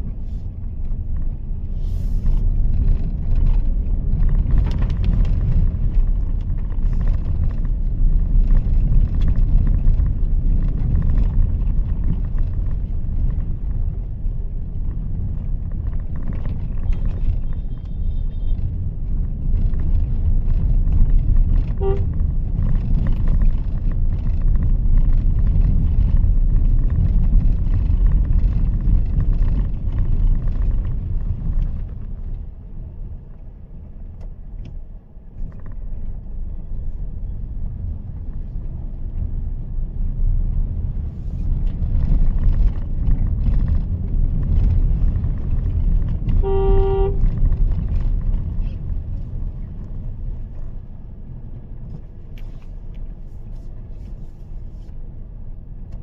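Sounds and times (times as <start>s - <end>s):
car engine and tyres rumbling: 0.0s - 56.0s
car horn toot: 17.4s - 18.6s, 21.7s - 22.2s, 46.3s - 47.4s.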